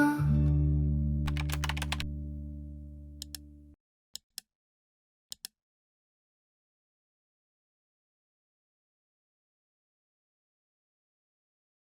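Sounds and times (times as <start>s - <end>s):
soft background song: 0.0s - 3.4s
sharp ticks: 1.3s - 2.0s, 3.2s - 3.4s.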